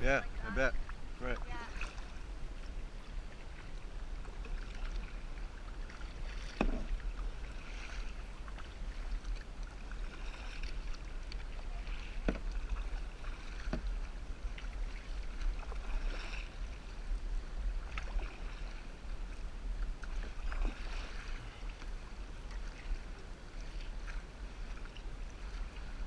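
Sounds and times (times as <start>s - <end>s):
steady low rumble: 0.0s - 26.0s
water sloshing around kayak: 0.0s - 26.0s
splashes or knocks: 6.3s - 7.0s.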